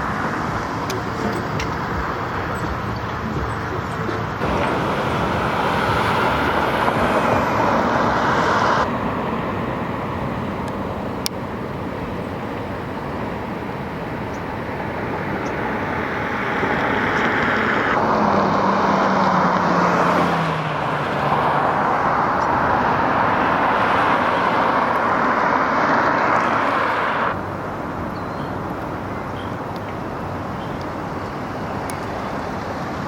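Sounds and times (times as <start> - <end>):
road traffic rushing by: 0.0 - 33.0
vehicle engine hum passing: 0.0 - 33.0.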